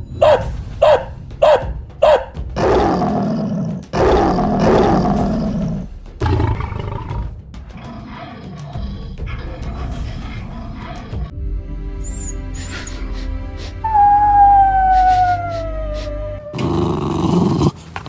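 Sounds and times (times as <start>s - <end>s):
bear roaring: 2.4s - 11.3s, 13.9s - 17.8s.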